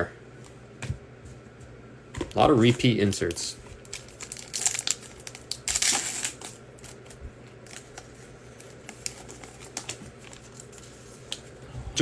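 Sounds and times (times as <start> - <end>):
crinkly card pack rustling: 2.2 - 11.6.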